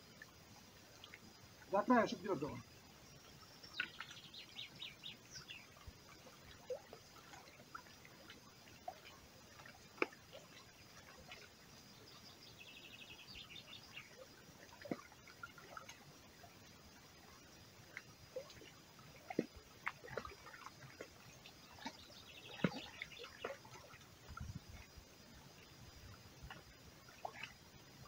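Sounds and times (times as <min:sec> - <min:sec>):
songbird chirping and trilling: 0:01.0 - 0:06.9, 0:10.4 - 0:14.8, 0:21.4 - 0:24.8.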